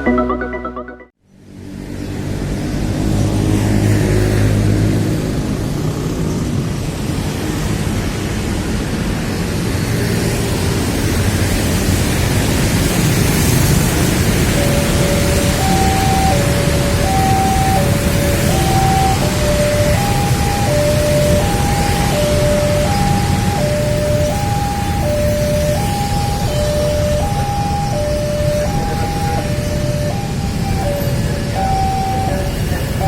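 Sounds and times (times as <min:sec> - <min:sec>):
two-tone level crossing signal: 0:00.0 - 0:01.1, 0:14.6 - 0:33.0
road traffic: 0:00.0 - 0:33.0
heavy vehicle engine: 0:01.6 - 0:33.0.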